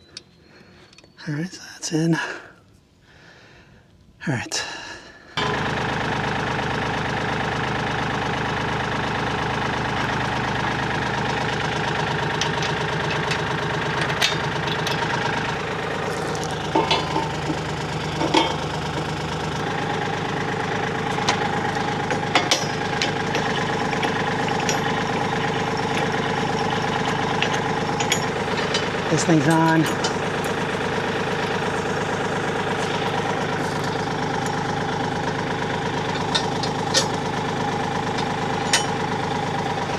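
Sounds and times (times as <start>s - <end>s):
tractor diesel engine idling: 5.4s - 39.9s
metallic clanks: 9.8s - 35.4s, 36.0s - 39.0s.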